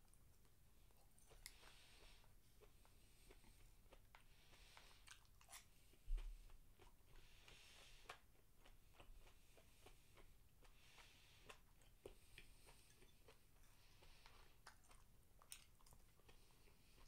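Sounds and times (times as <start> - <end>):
mouth chewing clicks and smacks: 2.6 - 17.0.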